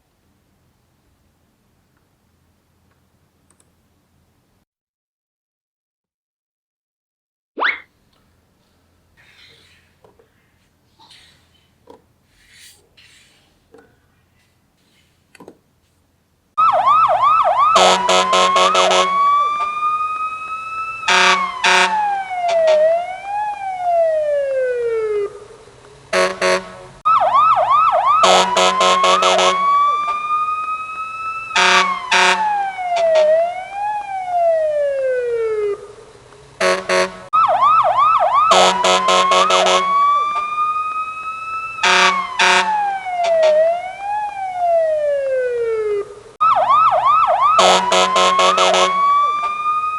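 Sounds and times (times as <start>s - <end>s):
police car siren: 16.6s - 25.6s, 27.0s - 36.0s, 37.3s - 49.9s.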